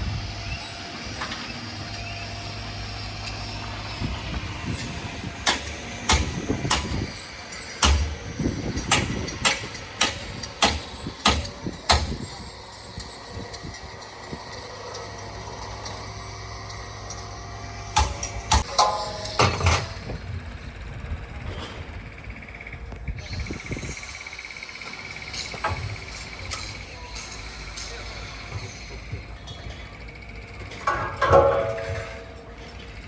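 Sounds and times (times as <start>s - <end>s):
heavy construction machinery running: 0.0s - 33.0s
metallic knocks and clanks: 5.4s - 12.3s, 18.0s - 20.1s, 30.7s - 32.9s.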